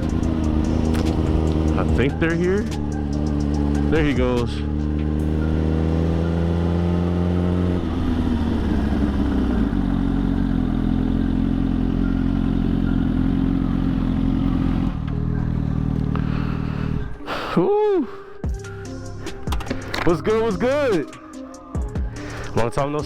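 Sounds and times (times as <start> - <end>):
motorcycle engine accelerating: 0.0 - 17.3.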